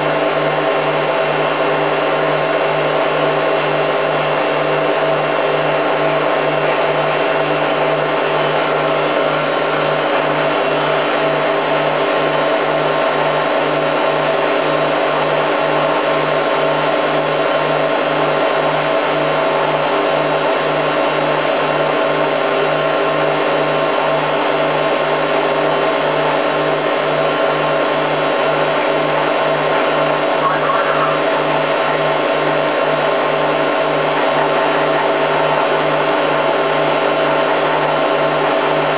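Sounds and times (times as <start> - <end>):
washing machine motor whine: 0.0 - 38.9
pulsing low hum: 29.7 - 32.8.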